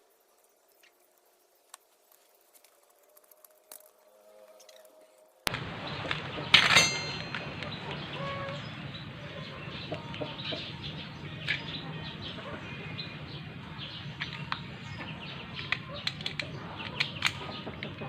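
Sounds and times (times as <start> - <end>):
low background hum: 4.0 - 18.0.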